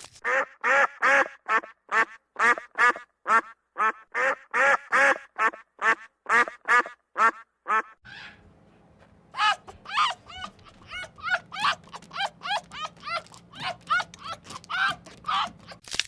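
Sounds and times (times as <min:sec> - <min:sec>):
ducks quacking: 0:00.2 - 0:08.0
short fowl calls: 0:00.3 - 0:08.3
low steady hum: 0:08.1 - 0:15.8.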